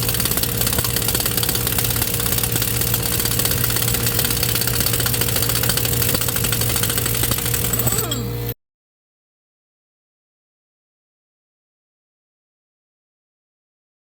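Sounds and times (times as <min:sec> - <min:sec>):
engine running with fast pulsing: 0:00.0 - 0:08.6.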